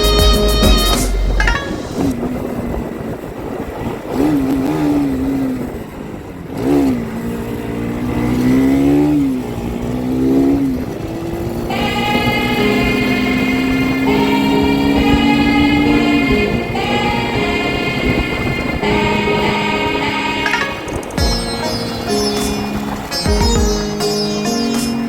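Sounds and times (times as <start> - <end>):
background music: 0.0 - 2.1, 11.4 - 25.0
motorcycle engine revving: 0.1 - 25.0.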